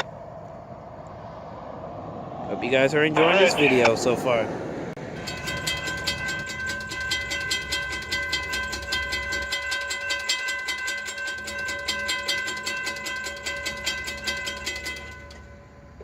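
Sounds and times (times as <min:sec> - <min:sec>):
idling diesel locomotives rumble: 0:04.9 - 0:16.0
crossing warning bell ringing: 0:05.0 - 0:16.0.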